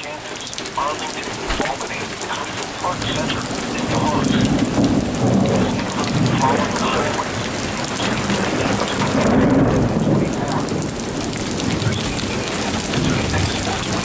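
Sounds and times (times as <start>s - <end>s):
heavy rain pelting down: 0.0s - 14.0s
low rumble of thunder: 1.4s - 14.0s.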